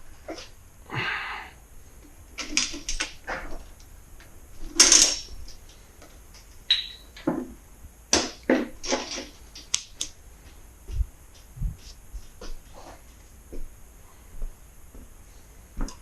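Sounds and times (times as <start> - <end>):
tools and parts knocking: 6.7 - 7.6.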